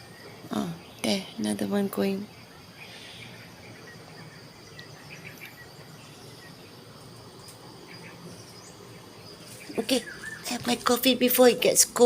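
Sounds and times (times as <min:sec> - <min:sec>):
faint bird chirps: 0:00.0 - 0:11.2.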